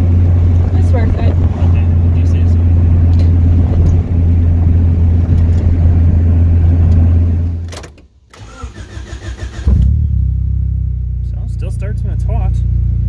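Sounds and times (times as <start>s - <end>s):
car engine running while driving: 0.0s - 7.7s, 9.6s - 13.0s
engine idling: 0.0s - 7.7s
starter cranking engine: 8.3s - 9.9s.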